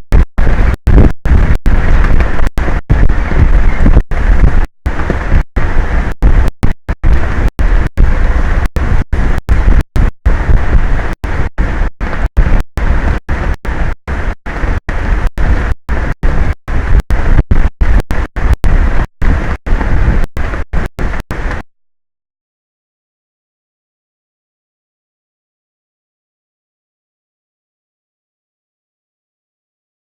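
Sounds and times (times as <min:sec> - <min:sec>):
wind buffeting microphone: 0:00.0 - 0:21.7.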